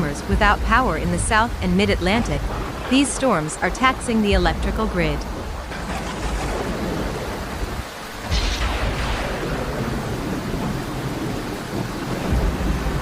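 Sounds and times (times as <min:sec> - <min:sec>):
heavy rain: 0:00.0 - 0:13.0
thunder rumbling: 0:00.0 - 0:13.0
thunder crack: 0:00.3 - 0:13.0.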